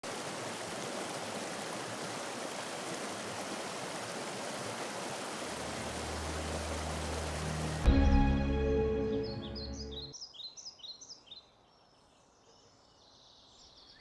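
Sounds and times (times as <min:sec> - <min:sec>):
mountain stream rushing: 0:00.0 - 0:09.2.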